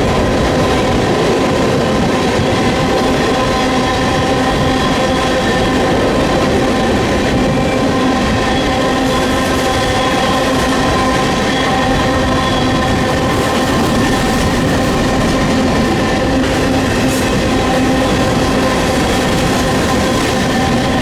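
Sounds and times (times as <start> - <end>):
train wheels rumbling on rail: 0.0 - 21.0
wind on microphone: 0.0 - 21.0.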